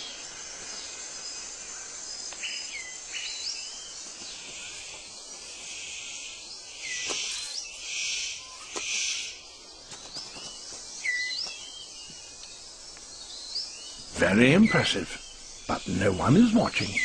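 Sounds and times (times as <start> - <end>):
high insect buzz: 0.0 - 17.0
sweeping bird calls: 0.0 - 17.0.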